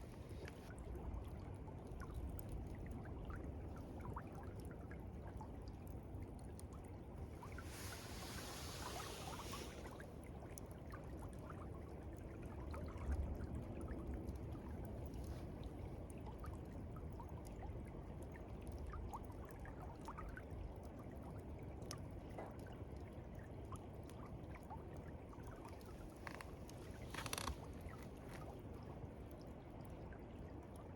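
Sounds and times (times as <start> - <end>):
faint ticks: 0.0 - 0.7, 25.7 - 28.6.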